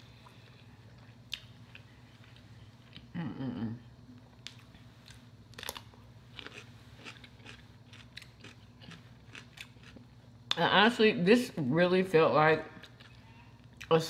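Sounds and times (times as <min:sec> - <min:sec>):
person chewing food: 0:04.2 - 0:10.5.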